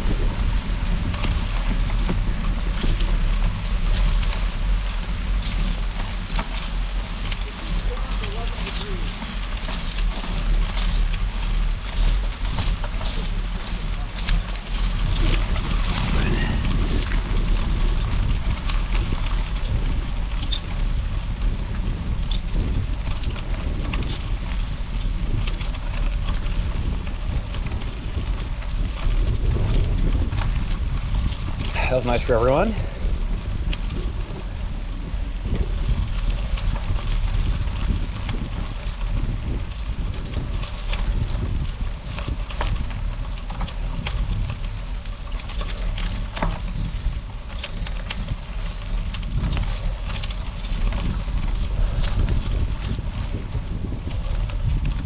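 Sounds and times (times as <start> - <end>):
tyres crunching on gravel: 0.0 - 55.0
wind buffeting microphone: 0.0 - 55.0.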